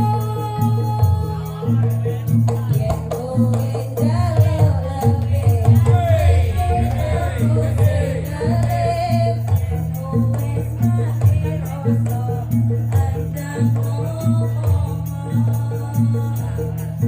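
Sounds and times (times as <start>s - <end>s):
person singing: 0.0s - 12.4s
steady percussion beat: 0.0s - 17.0s
sustained low notes: 5.8s - 9.6s.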